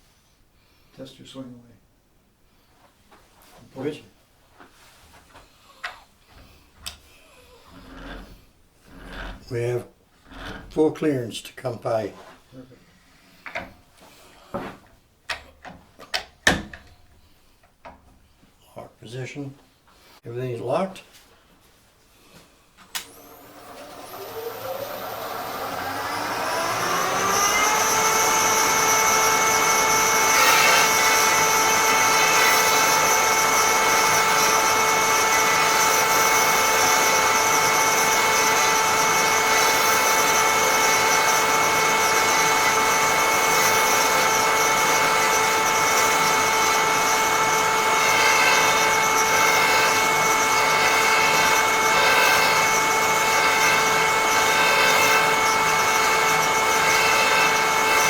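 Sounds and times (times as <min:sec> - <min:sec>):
cutter motor whining: 0:23.0 - 0:58.0.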